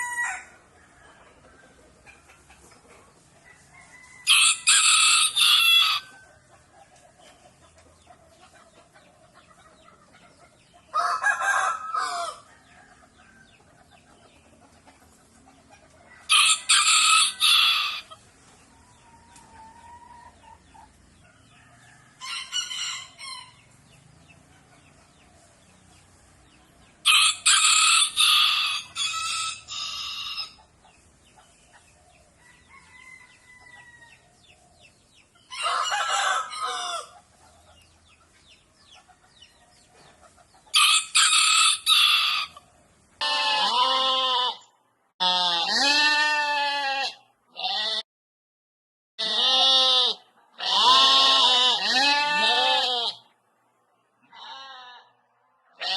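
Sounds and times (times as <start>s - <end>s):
rooster crowing: 0.0s - 1.2s, 3.6s - 6.3s, 10.9s - 13.4s, 16.2s - 18.1s, 21.6s - 23.6s, 27.0s - 30.6s, 32.4s - 34.2s, 35.5s - 37.2s, 40.7s - 42.6s.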